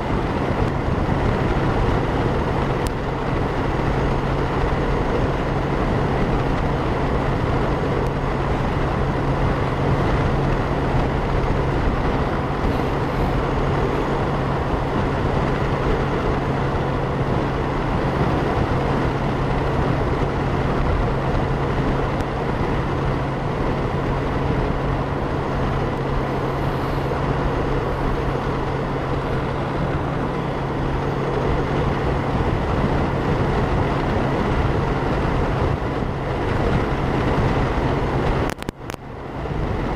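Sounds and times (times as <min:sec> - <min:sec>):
motorcycle engine drone: 0:00.0 - 0:39.9
road noise: 0:00.0 - 0:39.9
wind rushing over microphone: 0:00.0 - 0:39.9.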